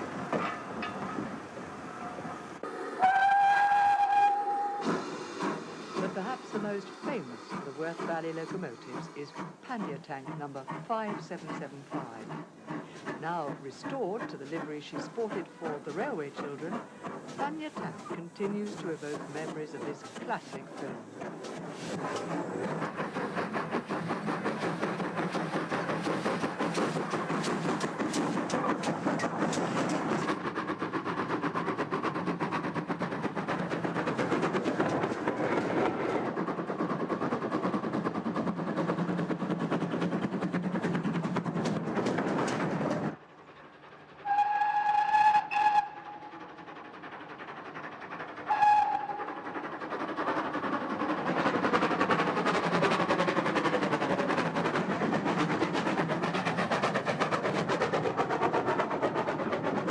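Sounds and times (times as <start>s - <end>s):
train rattling and clicking: 0.0s - 59.9s
locomotive whistle: 2.9s - 4.9s, 44.2s - 46.4s, 48.5s - 49.3s.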